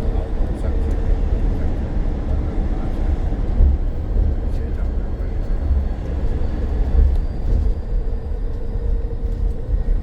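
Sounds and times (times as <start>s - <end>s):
bus rumble: 0.0s - 10.0s.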